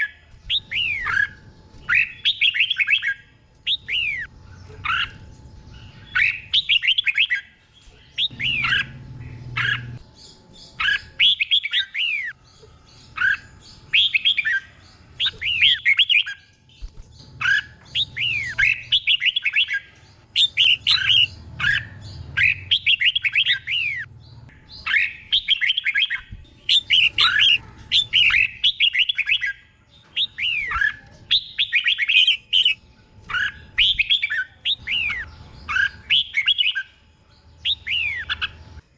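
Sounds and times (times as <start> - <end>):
bulbul whistled song: 0.0 - 5.1, 6.0 - 7.5, 8.1 - 9.0, 17.4 - 24.1, 24.7 - 37.0, 37.6 - 38.6.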